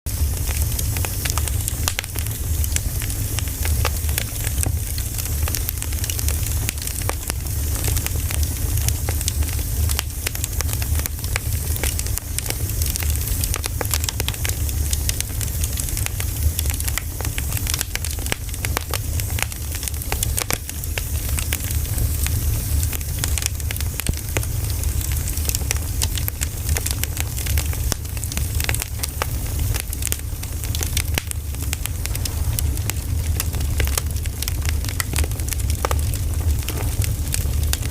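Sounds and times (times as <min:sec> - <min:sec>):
campfire crackling and popping: 0:00.1 - 0:37.9
low fire rumble: 0:00.1 - 0:37.9.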